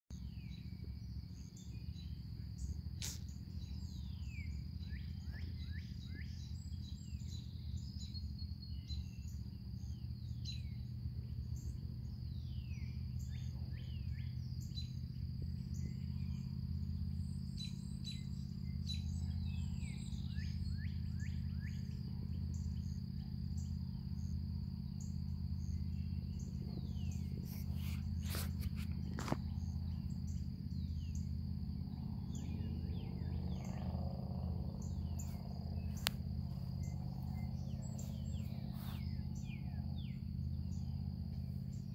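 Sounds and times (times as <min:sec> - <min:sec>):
birds chirping: 0:00.1 - 0:41.9
high insect trill: 0:00.2 - 0:41.9
low rumble: 0:10.8 - 0:41.9.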